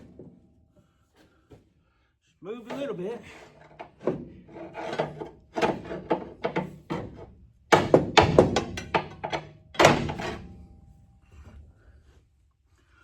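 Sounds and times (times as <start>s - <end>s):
pry bar clanking on metal: 3.5s - 10.5s
metal knocks: 3.8s - 10.6s.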